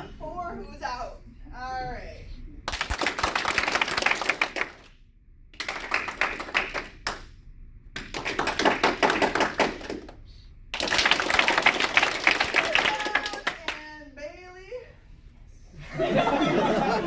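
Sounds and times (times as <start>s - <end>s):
audience clapping: 2.7s - 7.3s, 8.0s - 13.8s.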